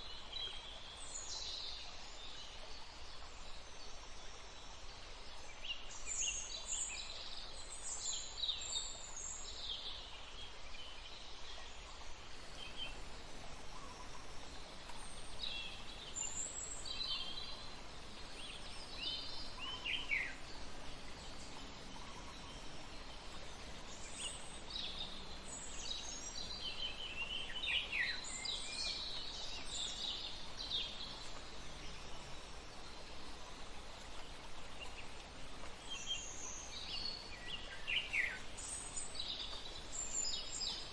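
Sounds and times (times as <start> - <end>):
steady background hiss: 0.0 - 40.9
birds chirping: 12.1 - 40.9.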